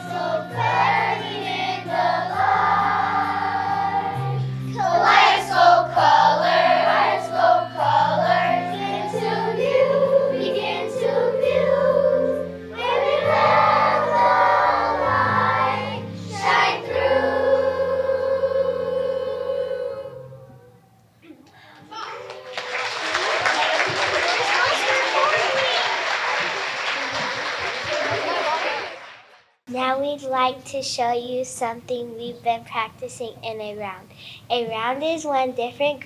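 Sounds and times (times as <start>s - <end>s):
children's choir singing: 0.0s - 20.7s, 22.4s - 29.0s.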